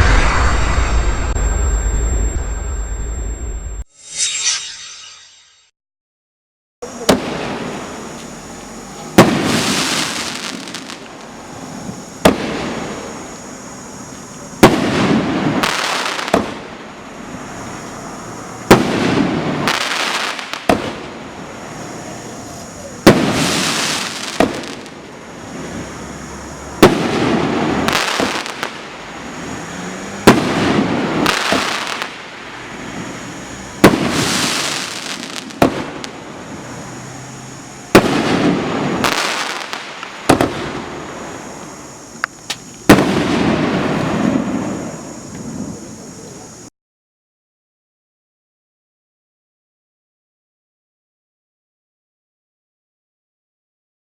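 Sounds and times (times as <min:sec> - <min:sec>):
firework reports: 0:00.0 - 0:03.8, 0:06.8 - 0:46.7
firework crackling: 0:06.9 - 0:45.8.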